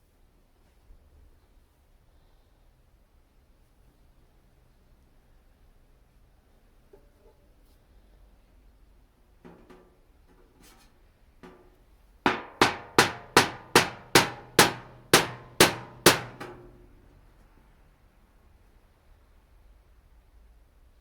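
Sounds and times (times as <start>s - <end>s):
hammer striking screwdriver into metal tin: 12.3s - 16.8s.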